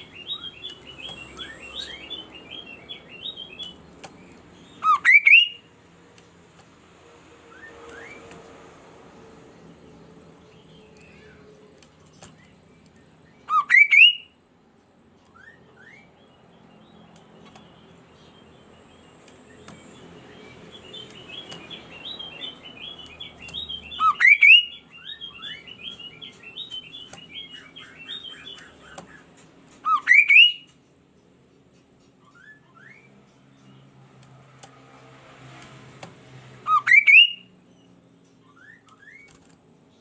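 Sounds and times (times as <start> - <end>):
bird rising calls: 19.8 - 30.6.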